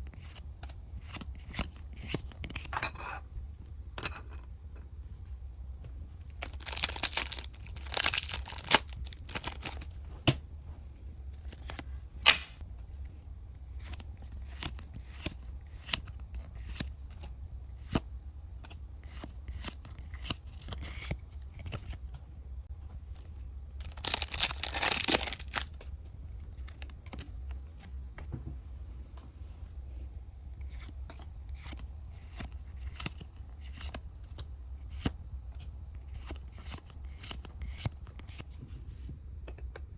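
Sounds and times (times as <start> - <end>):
cards clicking and rustling: 6.4 - 9.9, 13.7 - 17.3, 23.8 - 25.8, 30.6 - 34.0
wrappers being torn open: 6.4 - 9.9, 23.8 - 25.7.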